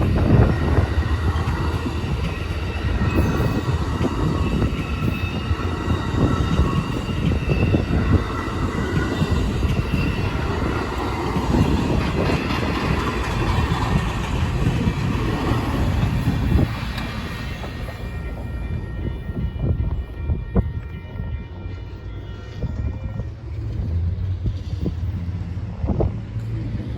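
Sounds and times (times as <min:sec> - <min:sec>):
faint wheel squeal on rail: 0:00.0 - 0:20.0
train wheels rumbling on rails: 0:00.0 - 0:26.9.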